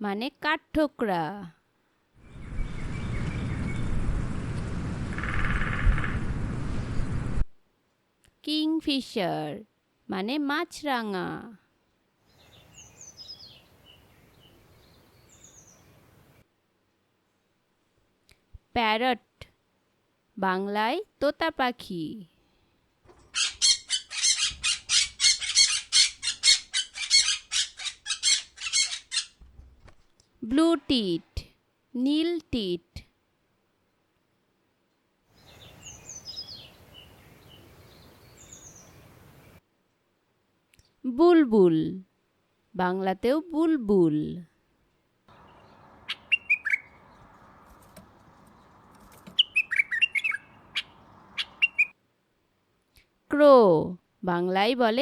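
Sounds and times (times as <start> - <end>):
faint steady hiss: 6.2 - 23.2, 29.4 - 41.2
parrot squawking: 23.3 - 29.4, 46.1 - 47.0, 49.4 - 52.0
bulbul chirping: 46.1 - 47.0, 49.3 - 51.9.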